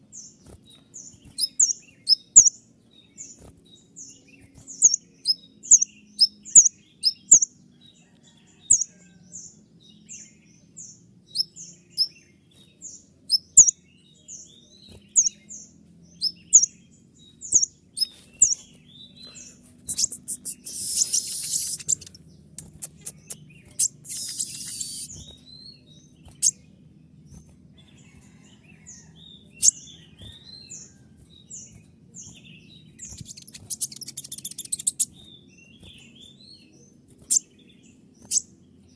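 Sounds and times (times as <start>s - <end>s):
bird singing shrill chip notes: 1.0s - 7.6s, 12.9s - 13.8s, 16.2s - 26.9s, 29.5s - 38.6s
fast buzzy bird trills: 19.7s - 25.5s, 32.9s - 35.2s.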